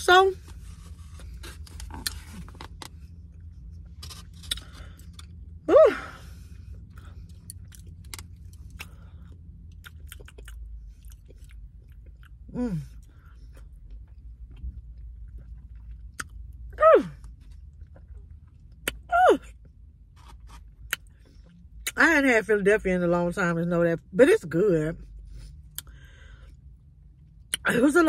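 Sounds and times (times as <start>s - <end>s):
chewing and wet mouth clicks: 7.3s - 12.4s, 13.0s - 16.6s.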